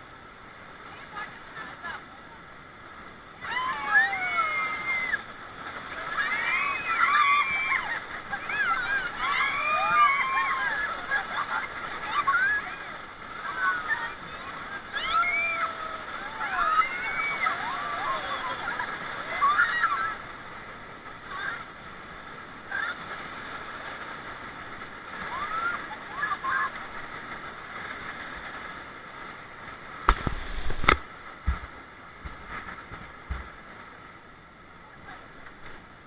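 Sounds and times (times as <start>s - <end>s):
river water rushing: 0.0s - 36.0s
people calling out: 13.5s - 20.3s.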